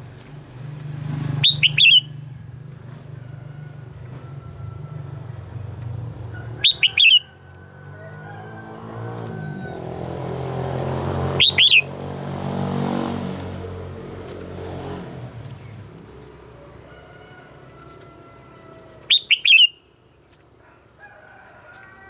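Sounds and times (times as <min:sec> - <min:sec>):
vehicle engine hum: 0:00.0 - 0:21.0
bird whistled song: 0:01.4 - 0:02.2, 0:05.9 - 0:07.4, 0:11.3 - 0:11.9, 0:19.1 - 0:20.0.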